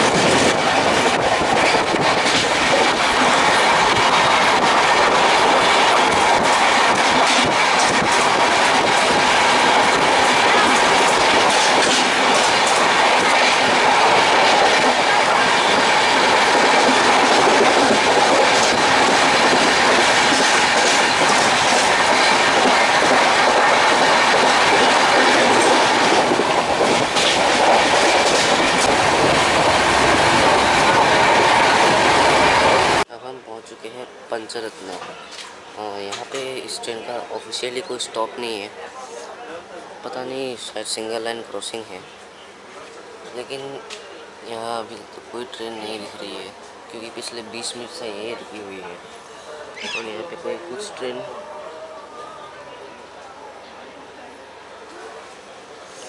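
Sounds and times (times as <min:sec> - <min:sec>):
train wheels on rail: 0:00.0 - 0:33.1
wind rushing: 0:00.0 - 0:33.1.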